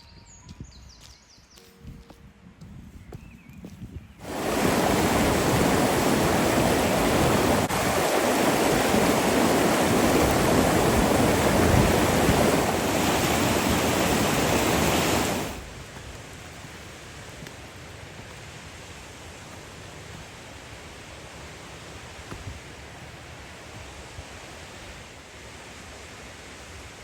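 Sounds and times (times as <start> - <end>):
waterfall rushing: 4.2 - 15.8.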